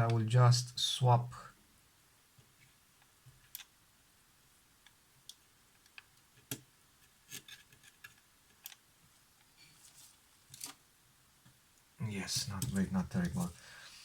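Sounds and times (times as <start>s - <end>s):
small clicks and taps of objects: 4.8s - 8.8s.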